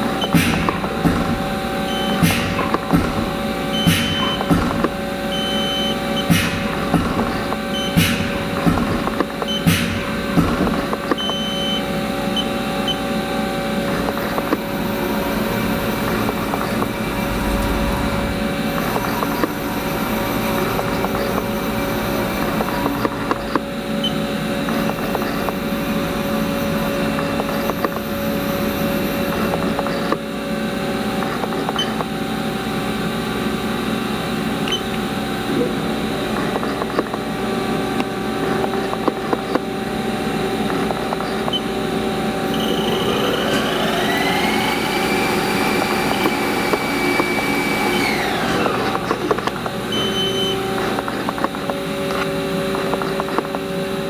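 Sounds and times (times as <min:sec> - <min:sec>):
lathe machine hum: 0:00.0 - 0:31.4, 0:32.2 - 0:54.0.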